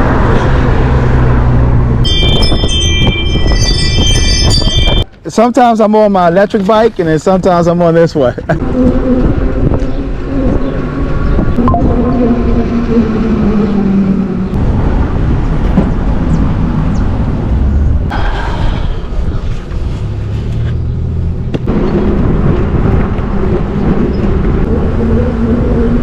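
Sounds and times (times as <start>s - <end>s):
wind on microphone: 0.0s - 5.0s, 8.6s - 16.6s, 21.7s - 26.0s
road rumble: 0.0s - 26.0s.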